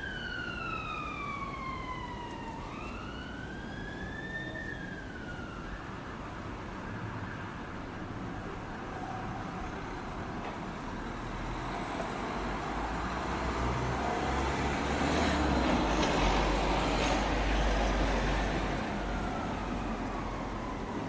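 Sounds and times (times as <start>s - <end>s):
vehicle driving past: 11.5s - 20.7s.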